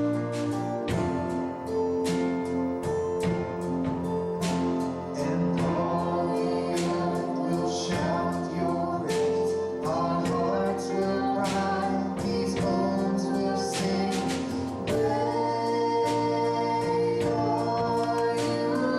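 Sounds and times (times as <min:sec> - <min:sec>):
instrumental accompaniment: 0:00.0 - 0:18.9
voices singing worship song: 0:04.5 - 0:18.9.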